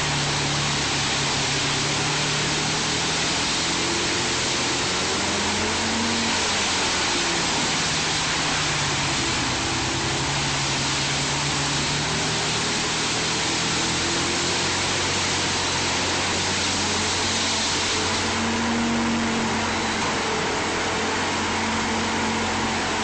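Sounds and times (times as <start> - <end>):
loud rushing noise: 0.0 - 23.0
wood chipper engine drone: 0.0 - 23.0.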